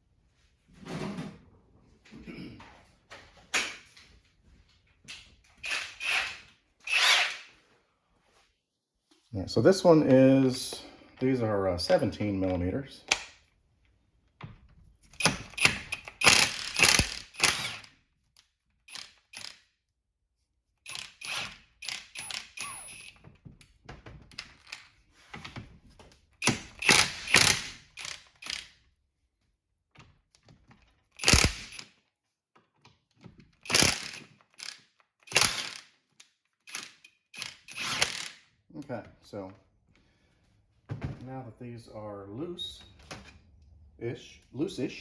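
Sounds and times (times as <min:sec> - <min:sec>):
wrench rattling: 0:15.1 - 0:17.9, 0:18.9 - 0:19.6, 0:20.9 - 0:23.2, 0:26.4 - 0:28.7, 0:31.1 - 0:32.0, 0:33.3 - 0:38.5.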